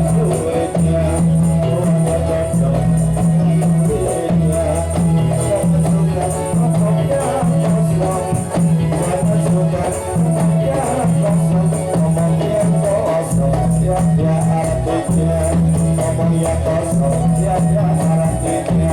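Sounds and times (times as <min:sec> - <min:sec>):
jingling frame drums: 0:00.0 - 0:18.9.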